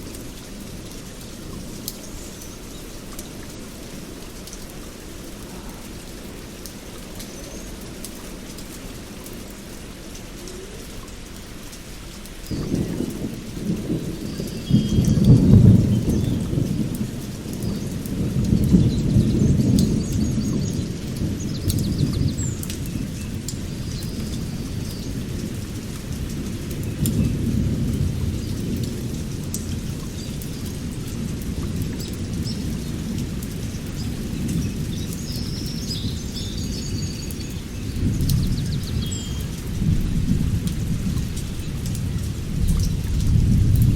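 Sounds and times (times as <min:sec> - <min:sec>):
steady rain: 0:00.0 - 0:43.9
thunder rumbling: 0:12.5 - 0:35.2, 0:37.6 - 0:43.9.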